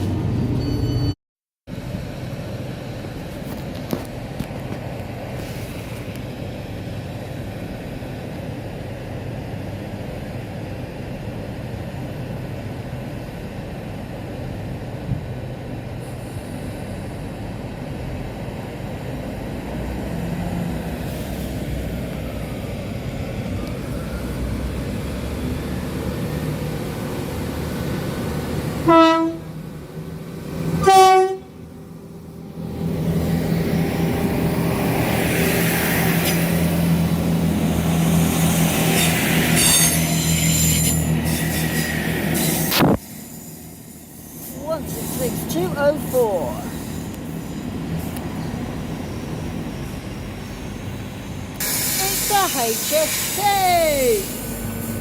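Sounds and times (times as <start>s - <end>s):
train engine rumble: 0.0s - 55.0s
trains rumbling at station: 0.0s - 55.0s
train horn blasts: 28.8s - 29.5s, 30.8s - 31.6s.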